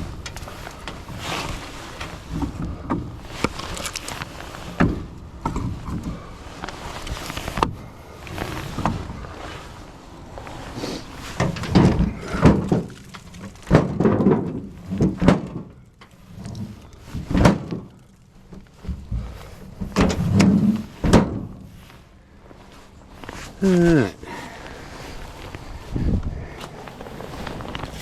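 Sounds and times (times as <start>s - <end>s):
firewood pieces thunking: 0.0s - 9.3s, 10.5s - 21.9s.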